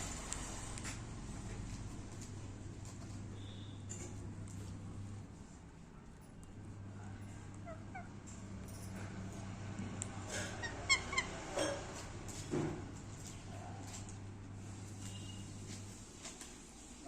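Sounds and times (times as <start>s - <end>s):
parrot chirping: 7.6s - 8.1s, 10.5s - 11.5s.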